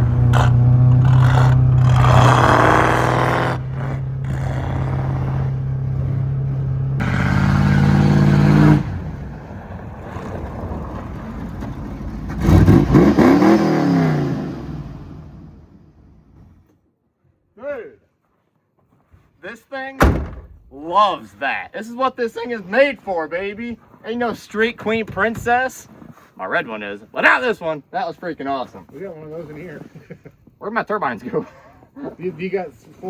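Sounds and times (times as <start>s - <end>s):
engine running hard and revving: 0.0s - 9.3s, 12.3s - 15.4s.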